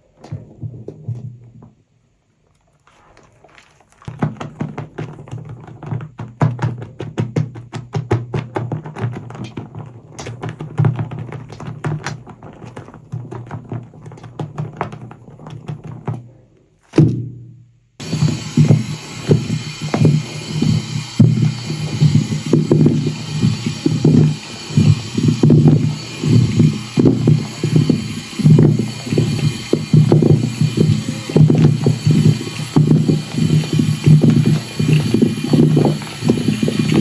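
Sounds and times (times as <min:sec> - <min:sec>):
sponge squelching in foam: 0:02.6 - 0:04.1
bubbles crackling: 0:18.0 - 0:37.0
wet hiss: 0:18.0 - 0:37.0.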